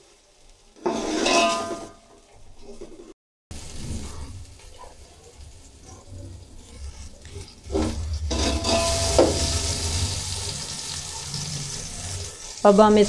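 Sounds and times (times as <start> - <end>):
food sizzling in hot oil: 0.0 - 13.0
metal spoon scraping pot: 0.8 - 2.0, 5.8 - 10.2.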